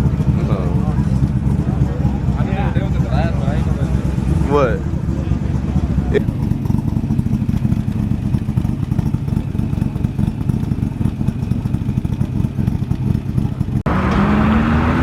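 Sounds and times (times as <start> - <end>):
car engine rough rumble: 0.0 - 15.0
engine revving up: 13.8 - 15.0.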